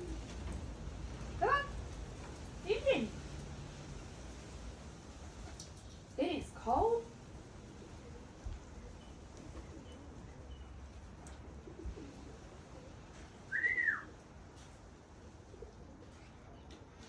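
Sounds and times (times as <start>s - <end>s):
pigeon cooing: 0.0s - 0.6s, 7.6s - 17.0s
faint outdoor rumble: 0.0s - 17.0s.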